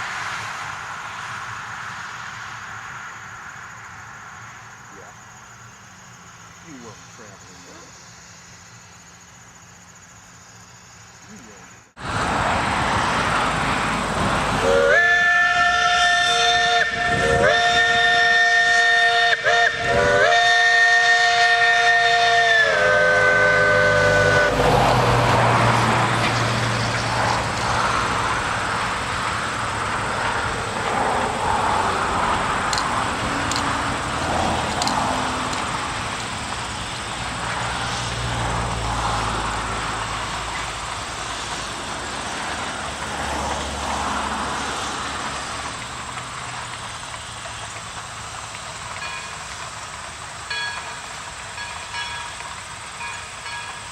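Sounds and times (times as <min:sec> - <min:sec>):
train running rumble: 0:00.0 - 0:53.9
steam locomotive whistle blasts: 0:14.6 - 0:24.8.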